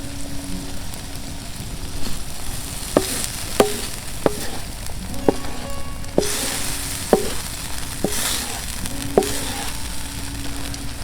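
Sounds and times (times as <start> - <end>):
food sizzling in a pan: 0.0 - 11.0
utensil knocking against pan: 3.0 - 4.7, 5.3 - 5.6, 6.2 - 9.8.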